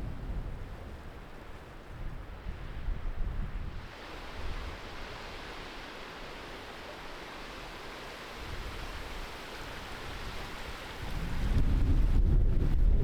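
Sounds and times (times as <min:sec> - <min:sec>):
wind buffeting microphone: 0:00.0 - 0:04.9, 0:08.4 - 0:13.0
gusty wind rushing: 0:11.0 - 0:13.0.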